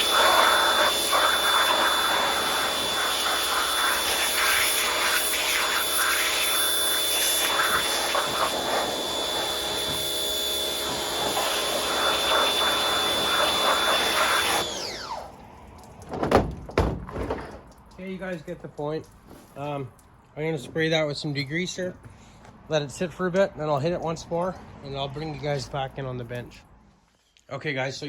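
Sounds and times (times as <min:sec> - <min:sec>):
power tool motor whining: 0:00.0 - 0:15.4
knocks: 0:16.1 - 0:17.8.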